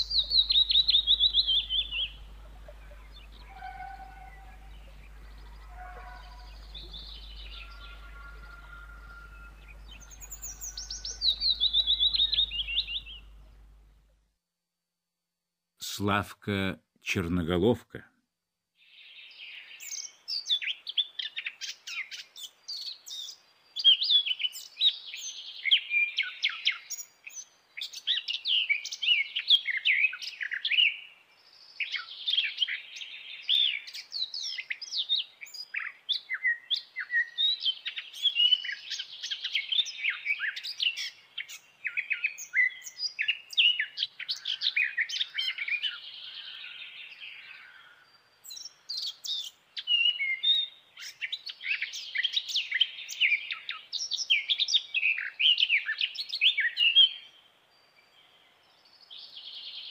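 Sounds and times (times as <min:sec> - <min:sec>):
bird warbling song: 0:00.0 - 0:14.0, 0:18.9 - 0:59.9.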